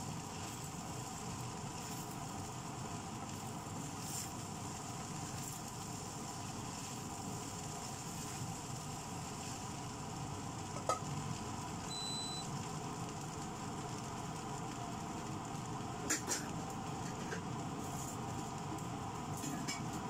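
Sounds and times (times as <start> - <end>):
rice sizzling in a wok: 0.0 - 20.0
short high beep: 11.9 - 12.4.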